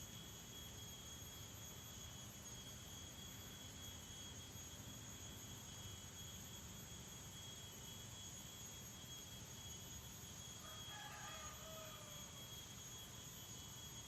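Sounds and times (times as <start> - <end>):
high insect tones: 0.0 - 14.0
distant rooster crow: 10.6 - 12.6.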